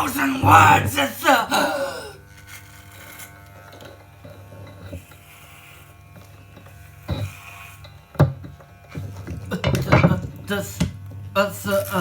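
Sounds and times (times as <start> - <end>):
low electric buzz: 2.2 - 9.5.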